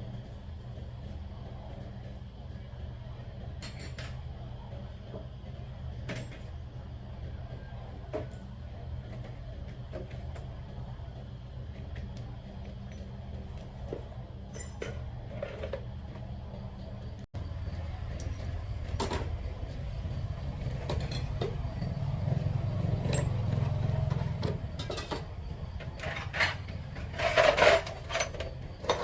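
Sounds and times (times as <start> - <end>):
low mechanical hum: 0.0 - 29.0
light clicks and clinks: 23.0 - 23.7.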